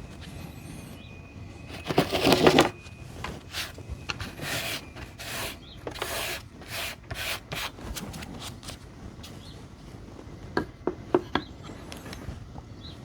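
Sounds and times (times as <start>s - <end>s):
battery cells rubbing and scraping: 0.0s - 9.6s.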